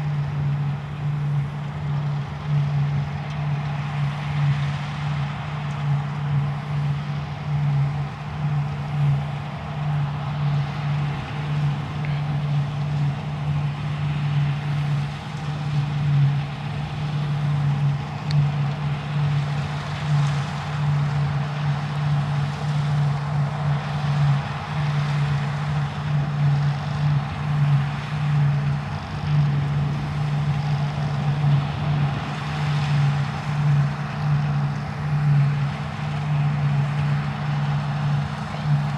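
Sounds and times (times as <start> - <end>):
combine harvester engine drone: 0.0 - 38.9.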